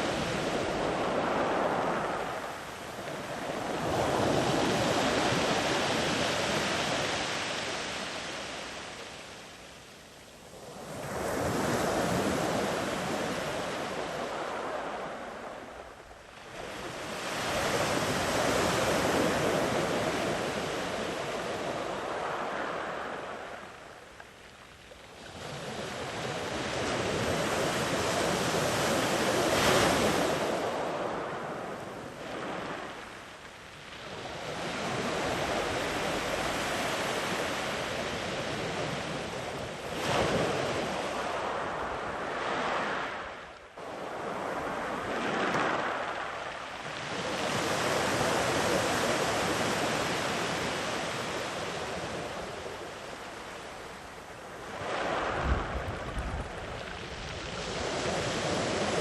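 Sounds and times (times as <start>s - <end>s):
sea waves surging on beach: 0.0s - 9.3s, 25.2s - 33.2s, 33.8s - 59.0s.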